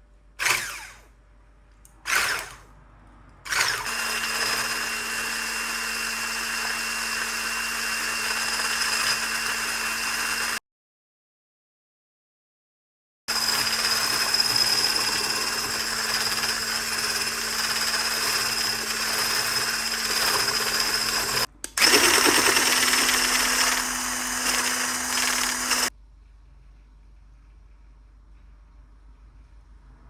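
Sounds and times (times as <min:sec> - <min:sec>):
kitchen appliance motor running: 0:00.4 - 0:01.1, 0:02.1 - 0:02.6, 0:03.5 - 0:10.6, 0:13.3 - 0:25.9.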